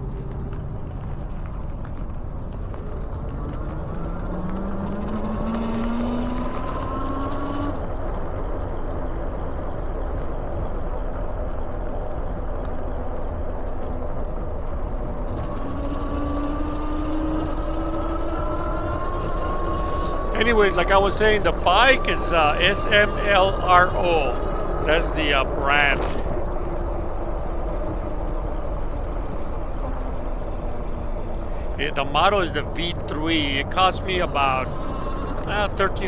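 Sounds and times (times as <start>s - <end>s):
wind and tyres rumbling: 0.0s - 20.4s, 26.0s - 31.8s, 34.6s - 35.6s.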